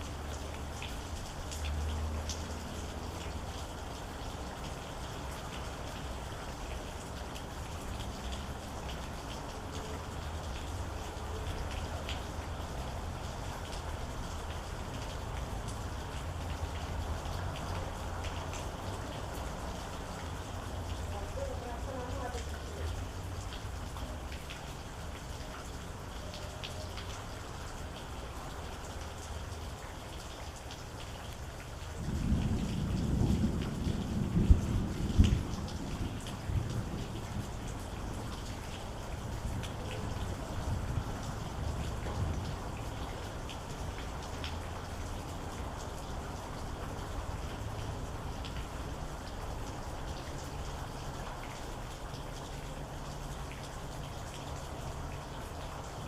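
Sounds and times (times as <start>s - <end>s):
rain with drops ticking: 0.0s - 56.0s
thunder rumbling: 32.0s - 37.4s.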